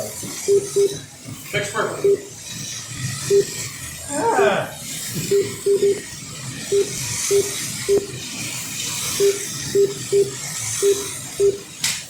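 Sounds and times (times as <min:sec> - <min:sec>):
slot-car trucks whirring: 0:00.0 - 0:12.0
short electronic beeps: 0:00.4 - 0:01.0, 0:01.9 - 0:02.3, 0:03.2 - 0:03.6, 0:05.2 - 0:08.1, 0:09.1 - 0:11.6.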